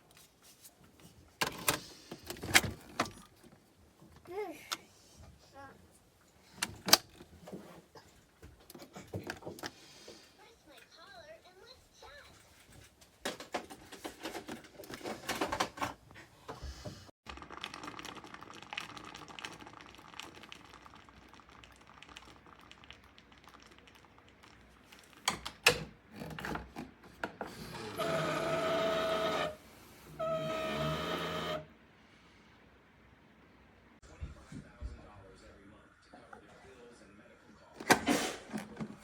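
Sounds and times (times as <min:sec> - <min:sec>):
small water pump buzzing: 0:27.5 - 0:31.7.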